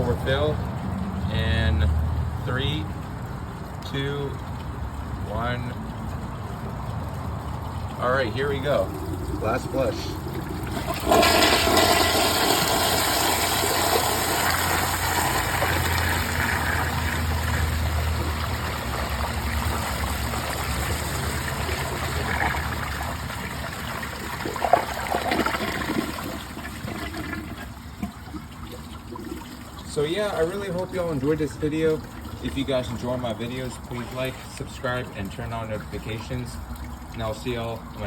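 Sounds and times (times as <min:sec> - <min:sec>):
toilet flushing: 0:06.5 - 0:38.0.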